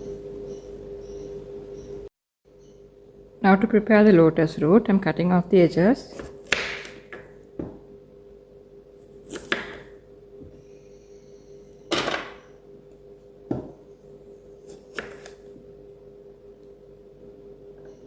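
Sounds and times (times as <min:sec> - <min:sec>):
knife cutting on chopping board: 0:09.2 - 0:09.8, 0:14.6 - 0:15.4.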